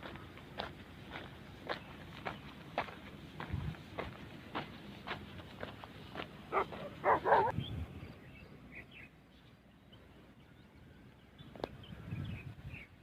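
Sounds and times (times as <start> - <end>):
light footsteps: 0.0 - 7.5
dog barking: 6.5 - 7.5.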